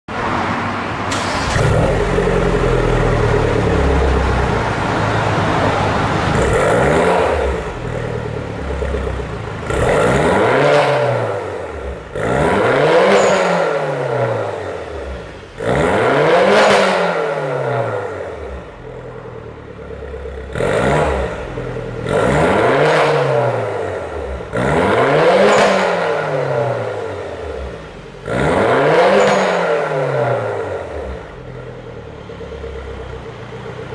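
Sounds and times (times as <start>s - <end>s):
car engine revving: 0.2s - 33.9s
engine idling: 1.1s - 10.1s, 30.8s - 33.9s.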